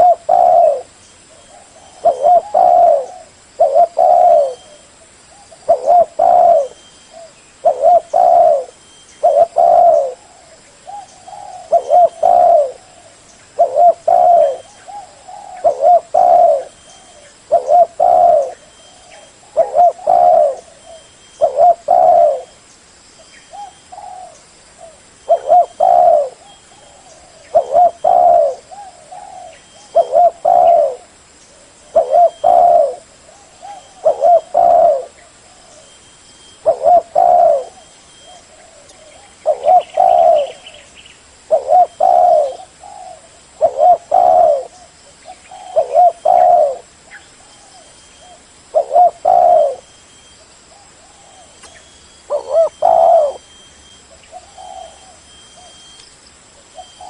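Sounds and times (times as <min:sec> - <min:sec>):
dove cooing: 0:00.0 - 0:22.6, 0:23.5 - 0:56.0, 0:56.6 - 0:57.0.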